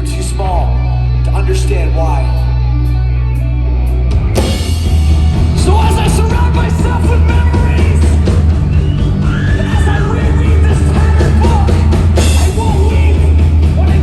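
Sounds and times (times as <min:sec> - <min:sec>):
loud rock band playing: 0:00.0 - 0:14.0
person singing: 0:09.2 - 0:14.0.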